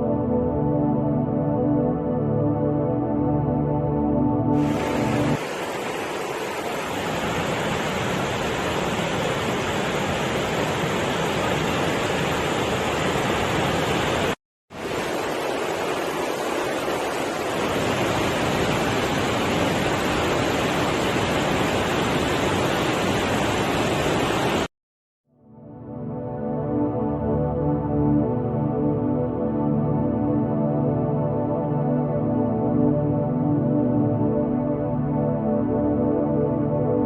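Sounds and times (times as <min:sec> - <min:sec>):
rushing water: 0:04.6 - 0:24.7.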